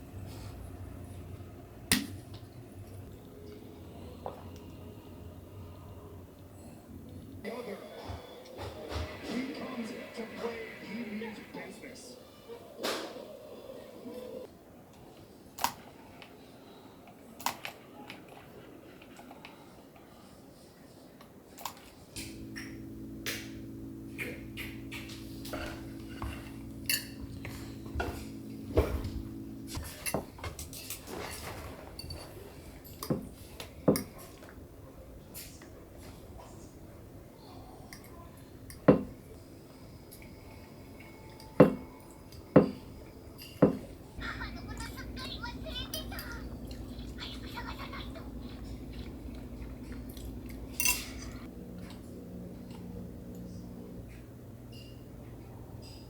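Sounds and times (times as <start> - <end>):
electric appliance motor hum: 0.0 - 10.9, 21.9 - 30.8, 38.5 - 56.0.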